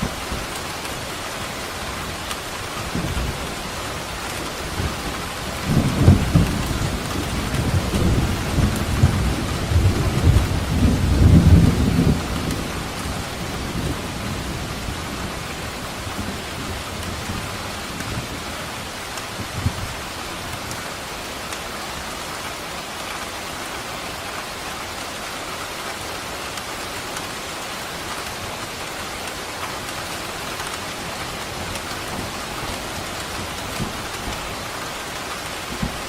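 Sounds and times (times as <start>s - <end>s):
steady rain falling: 0.0s - 36.0s
low roll of thunder: 4.8s - 18.3s.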